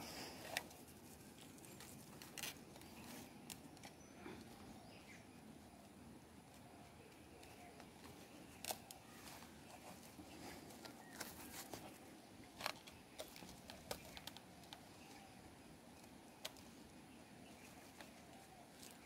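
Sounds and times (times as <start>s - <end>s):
rope rustling around pole: 0.0s - 4.8s, 5.8s - 15.3s.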